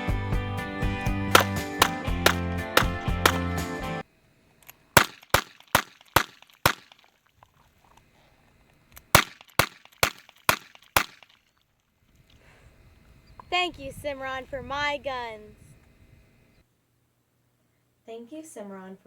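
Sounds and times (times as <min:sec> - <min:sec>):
revolver shots: 0:01.3 - 0:03.6.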